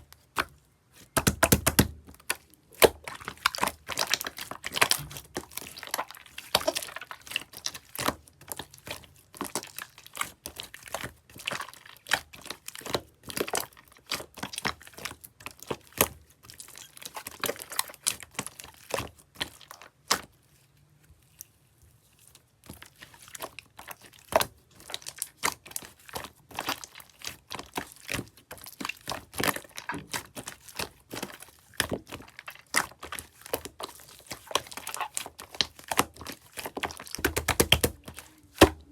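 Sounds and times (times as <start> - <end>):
slime crackling and popping: 1.1 - 20.4, 22.7 - 38.9.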